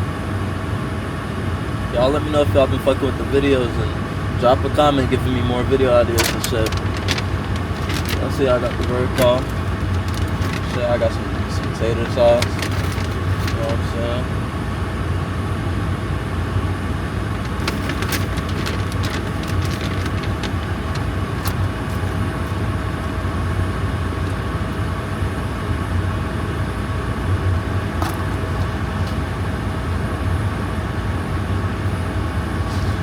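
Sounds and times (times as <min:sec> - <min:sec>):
car engine and road noise: 0:00.2 - 0:33.0.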